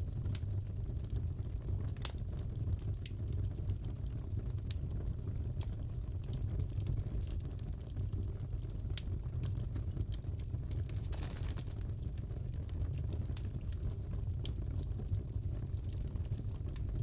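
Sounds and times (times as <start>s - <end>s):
fireplace fire crackling: 0.0s - 17.0s.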